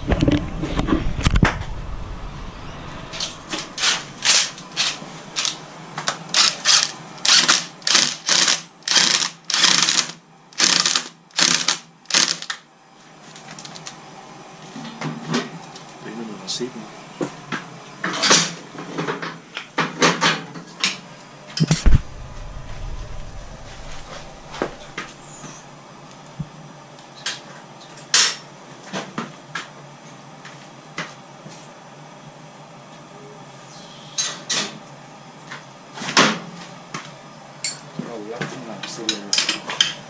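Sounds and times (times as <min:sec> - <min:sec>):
heavy thud: 0:21.7 - 0:25.2.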